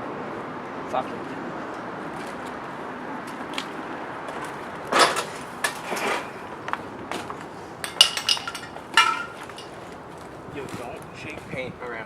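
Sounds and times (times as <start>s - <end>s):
hard objects knocking and clattering: 7.1s - 9.8s.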